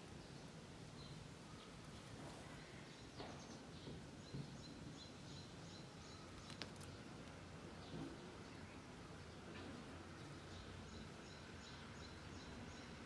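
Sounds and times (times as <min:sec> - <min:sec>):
outdoor ambience: 0:00.0 - 0:13.0
bird chirping: 0:02.6 - 0:07.1, 0:07.8 - 0:13.0.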